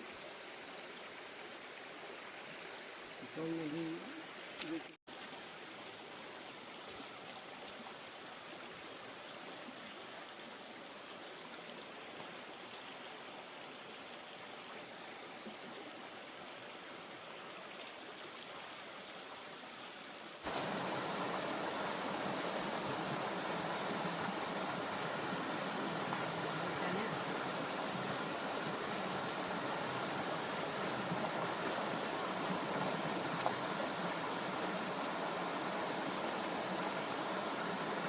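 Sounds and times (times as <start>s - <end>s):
stream water running: 0.0s - 38.0s.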